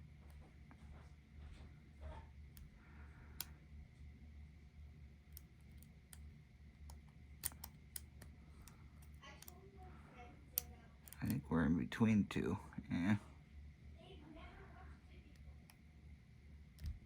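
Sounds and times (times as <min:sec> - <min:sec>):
low steady hum: 0:00.0 - 0:17.0
lock pick metal clicks: 0:06.9 - 0:08.3.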